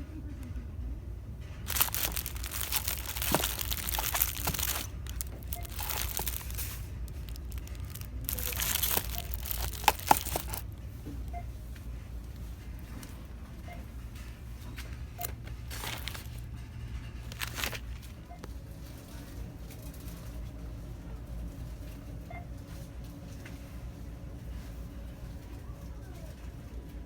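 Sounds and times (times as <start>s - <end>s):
crinkly packaging rustling: 1.7s - 10.8s, 15.2s - 18.5s.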